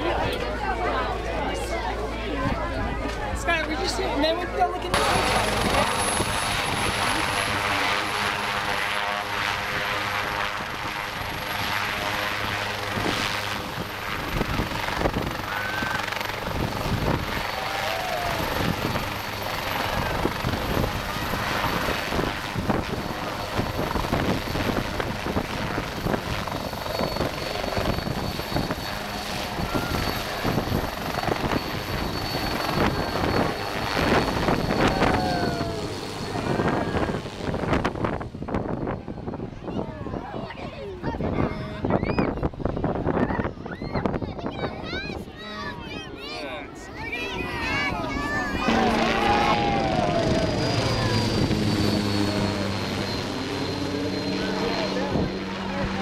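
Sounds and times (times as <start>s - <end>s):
crowd with voices: 0.0s - 56.0s
large engine humming: 48.0s - 56.0s.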